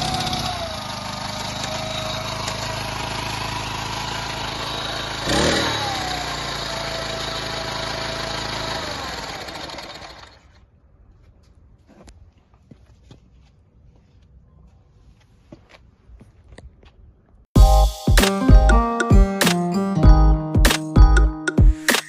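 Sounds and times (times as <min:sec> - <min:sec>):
small tiller engine running: 0:00.0 - 0:10.6.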